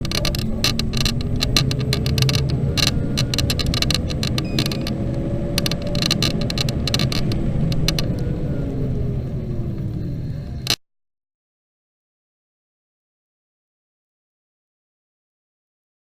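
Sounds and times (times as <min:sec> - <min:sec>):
scooter creaking clicks: 0:00.0 - 0:08.4, 0:09.8 - 0:10.8
electric scooter rumble and hum: 0:00.0 - 0:10.8.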